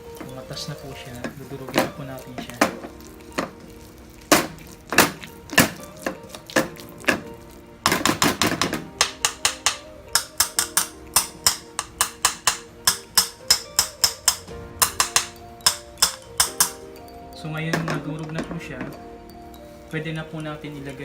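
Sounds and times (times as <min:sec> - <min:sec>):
soft background music: 0:00.0 - 0:21.0
utensil knocking against frying pan: 0:00.2 - 0:03.7, 0:04.3 - 0:16.9.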